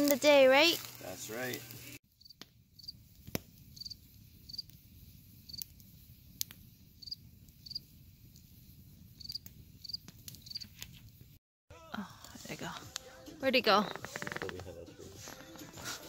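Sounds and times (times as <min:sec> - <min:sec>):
wood fire crackling: 0:00.0 - 0:11.4, 0:12.0 - 0:16.0
crickets chirping: 0:02.2 - 0:10.7
sharp pop of fire: 0:03.2 - 0:03.6.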